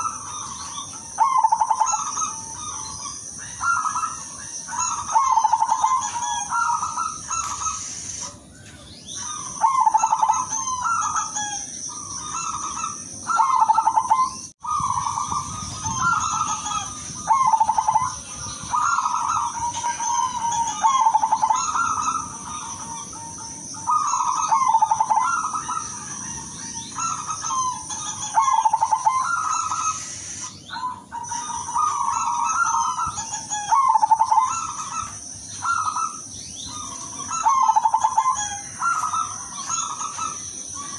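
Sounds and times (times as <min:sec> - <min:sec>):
dove cooing: 0:00.0 - 0:40.9
steady high hiss: 0:04.2 - 0:08.6, 0:14.8 - 0:40.9.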